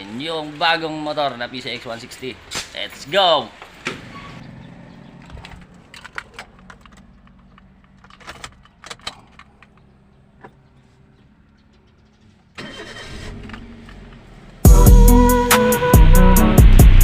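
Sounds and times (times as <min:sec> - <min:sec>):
small clicks and light knocks: 0:05.2 - 0:10.6.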